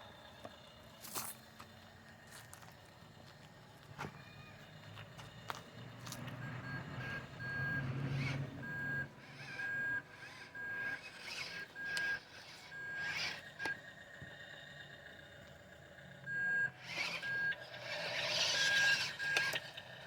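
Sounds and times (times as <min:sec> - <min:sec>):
diesel engine running: 0:00.0 - 0:20.0
reversing alarm beeping: 0:06.4 - 0:13.8, 0:16.0 - 0:20.0.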